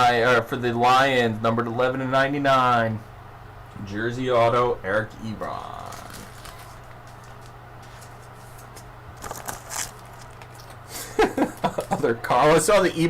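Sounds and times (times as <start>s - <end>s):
low steady hum: 0.0s - 13.0s
trading cards rustling: 5.7s - 10.8s.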